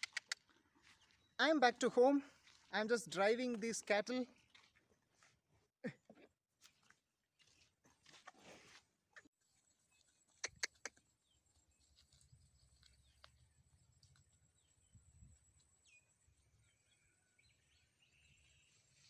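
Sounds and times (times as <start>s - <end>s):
sharp clicks: 0.0s - 0.4s.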